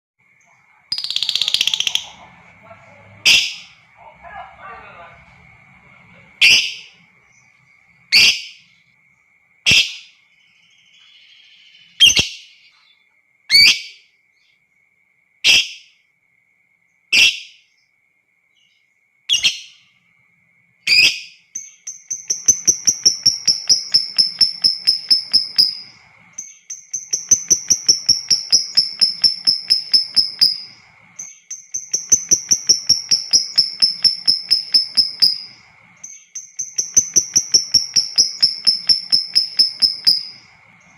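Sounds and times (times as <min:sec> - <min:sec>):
lovebird chattering rapidly: 0:00.8 - 0:05.2, 0:05.8 - 0:07.2, 0:20.9 - 0:40.9
faint steady high tone: 0:21.4 - 0:40.9.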